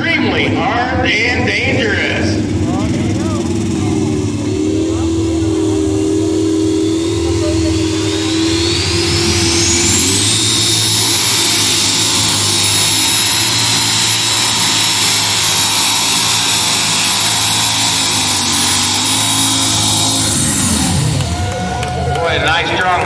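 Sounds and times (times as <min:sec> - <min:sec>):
high whine: 0:00.0 - 0:23.0
tractor engine at full power: 0:00.0 - 0:23.0.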